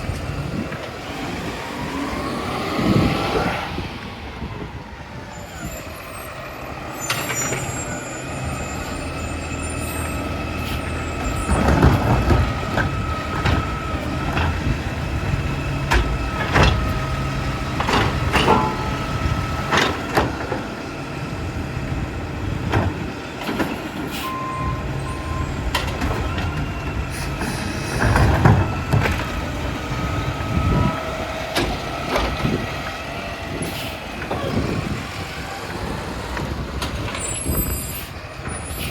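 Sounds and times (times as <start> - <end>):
diesel engine running: 0.0 - 38.9
hydraulic whine: 4.4 - 38.9
sharp metal clanks and knocks: 17.8 - 19.1.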